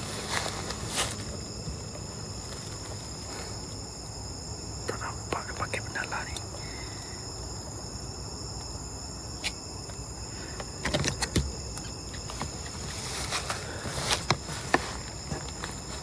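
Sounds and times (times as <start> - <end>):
rustling through undergrowth: 0.0 - 4.3, 10.3 - 16.0
crickets chirping: 0.0 - 16.0.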